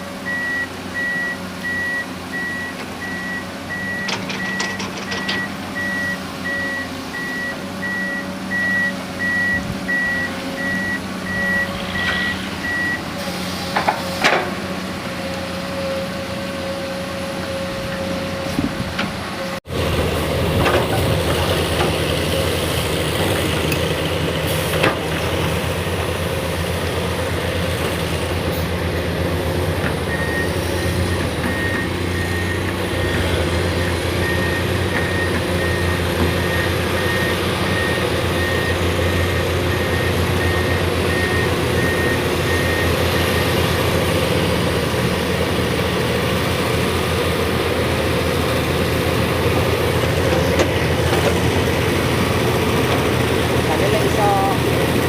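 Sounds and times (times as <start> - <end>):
heavy diesel engine running: 0.0 - 55.0
high alarm beeps: 0.3 - 13.0.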